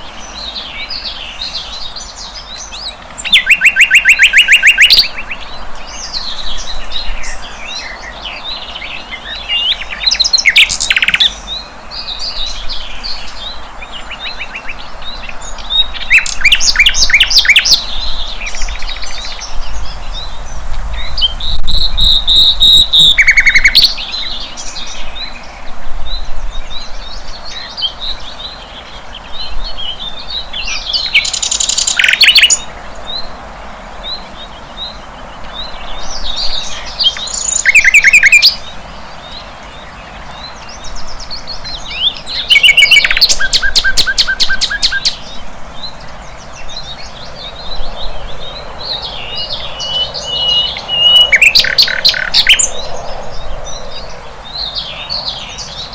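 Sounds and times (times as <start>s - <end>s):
flycatcher high twittering: 42.3s - 45.2s, 49.2s - 53.1s.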